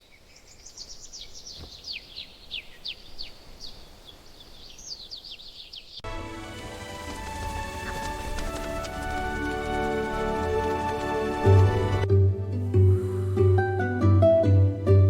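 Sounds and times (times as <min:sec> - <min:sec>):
small birds chirping: 0:00.0 - 0:06.1
music with held notes: 0:06.1 - 0:15.0.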